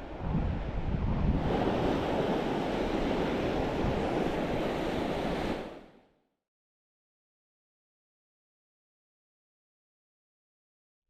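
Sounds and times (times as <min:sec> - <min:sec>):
wind buffeting microphone: 0:00.0 - 0:05.7
sea surf rushing on shore: 0:00.0 - 0:06.0.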